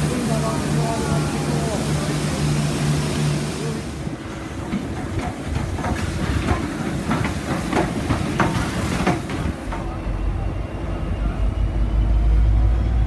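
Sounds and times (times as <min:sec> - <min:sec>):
diesel locomotive engine rumbling: 0:00.0 - 0:13.0
wheels clacking over rail joints: 0:04.3 - 0:10.2.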